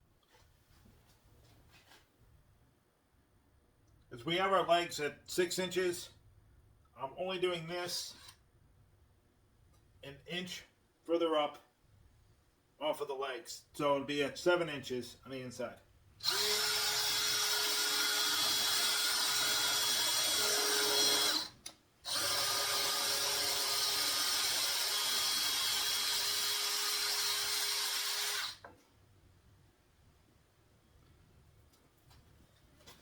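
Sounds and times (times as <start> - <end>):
electric power drill running: 16.2 - 28.6.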